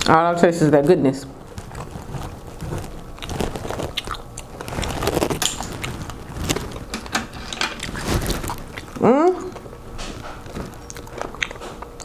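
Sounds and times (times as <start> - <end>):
chewing clam: 1.4 - 12.0.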